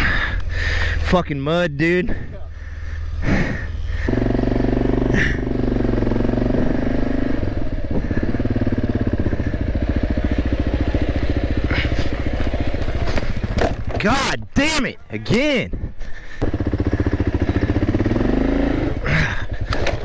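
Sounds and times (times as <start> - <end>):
motorcycle engine revving: 2.1 - 14.1, 16.4 - 20.0.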